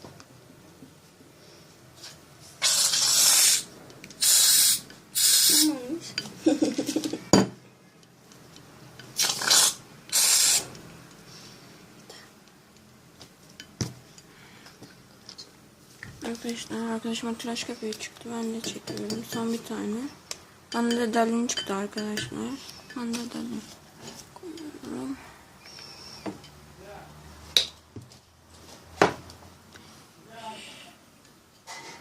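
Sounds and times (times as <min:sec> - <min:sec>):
aerosol can spraying: 0:02.6 - 0:05.8, 0:09.2 - 0:10.7.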